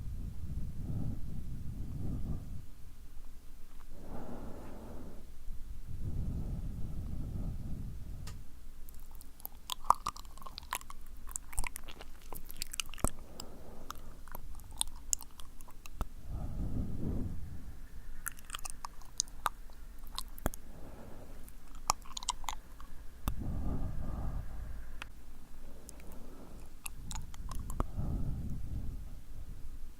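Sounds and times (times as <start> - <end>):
wet lip and tongue clicks: 8.3 - 16.1, 18.2 - 23.6, 25.8 - 28.6
breath blown onto microphone: 16.2 - 17.8, 23.3 - 25.0.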